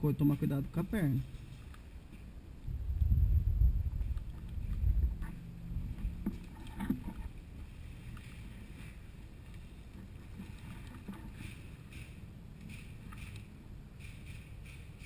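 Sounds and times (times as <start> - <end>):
rustling: 0.2 - 2.4, 3.8 - 15.0
low rumbling on microphone: 1.2 - 11.6.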